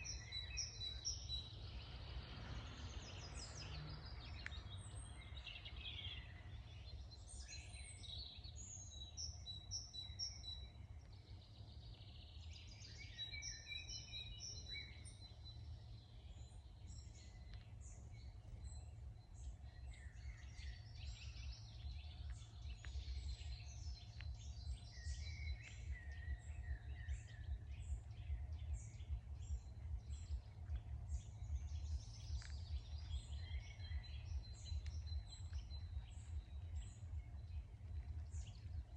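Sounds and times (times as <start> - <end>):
songbirds singing and chirping: 0.0 - 38.9
steady low rumble: 0.0 - 38.9.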